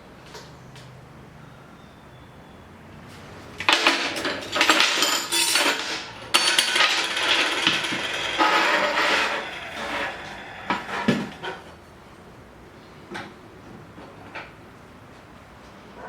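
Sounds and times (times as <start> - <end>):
harsh scraping tool: 5.5 - 11.8.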